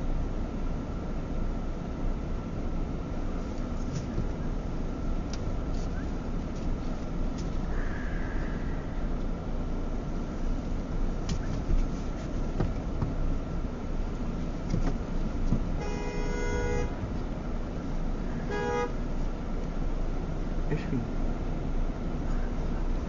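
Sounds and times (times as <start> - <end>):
low engine rumble: 0.0 - 23.0
car horn blast: 15.8 - 17.0, 18.4 - 19.1.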